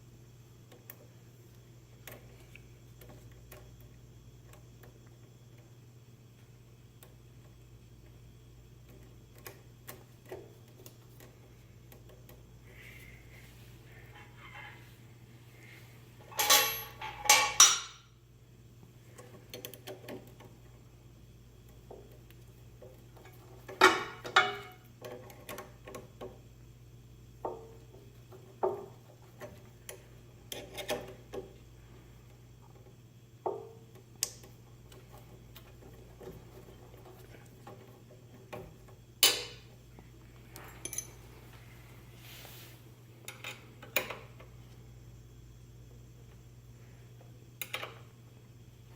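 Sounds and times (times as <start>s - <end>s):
metal tools clinking: 16.2s - 18.0s, 40.6s - 41.3s.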